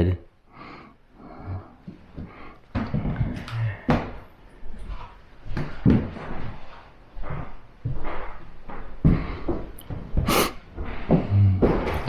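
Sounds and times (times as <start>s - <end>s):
knocks and thumps: 9.0s - 12.0s.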